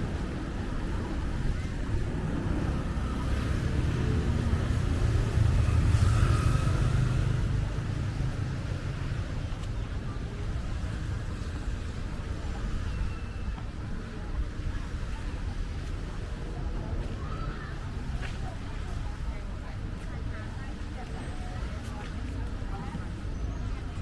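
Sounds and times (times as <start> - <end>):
vehicle passing with low rumble: 0.0 - 9.4
street noise: 0.0 - 24.0.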